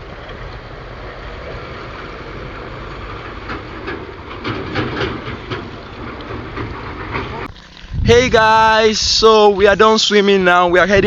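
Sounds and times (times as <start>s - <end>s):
river water splashing: 0.0s - 8.8s
steady noisy rumble: 0.0s - 11.0s.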